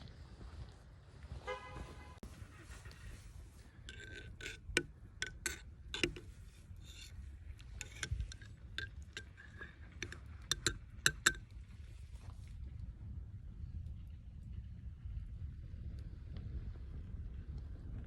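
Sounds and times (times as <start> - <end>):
low steady rumble: 0.0 - 18.0
clicks and taps of small objects: 7.8 - 11.4.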